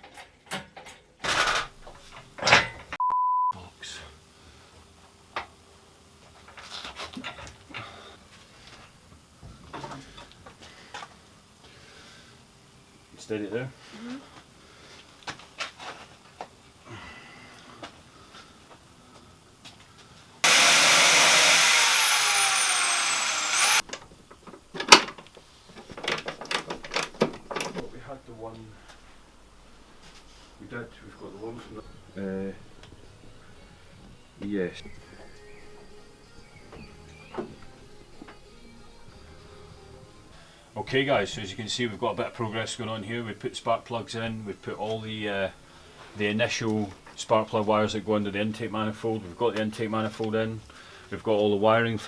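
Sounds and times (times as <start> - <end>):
power tool whining: 20.4 - 23.8.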